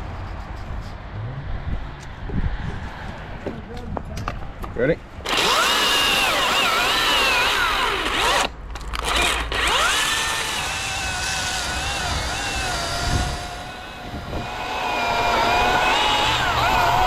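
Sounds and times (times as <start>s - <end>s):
chainsaw cutting wood: 5.2s - 17.0s.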